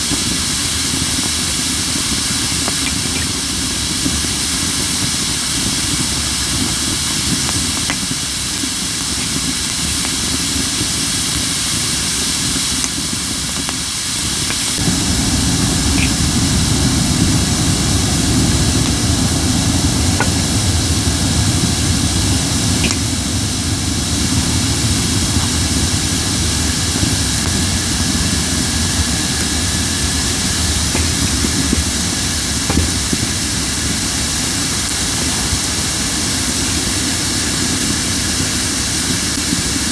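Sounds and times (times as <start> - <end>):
wood fire hissing and popping: 0.0 - 39.9
low rumble: 14.8 - 33.7.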